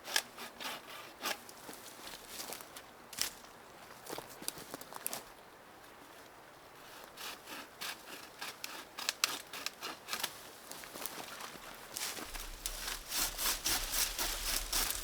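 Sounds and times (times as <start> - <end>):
rasping strokes on wood: 12.9 - 15.0.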